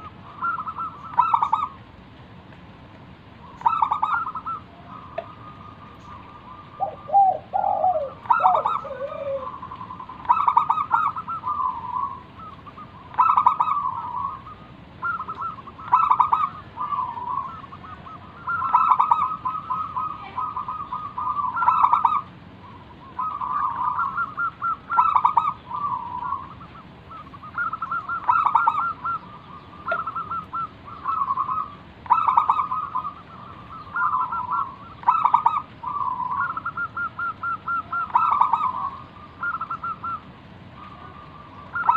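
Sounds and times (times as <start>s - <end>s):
dove cooing: 0.0s - 1.8s, 3.4s - 41.9s
low falling bird call: 0.0s - 41.9s.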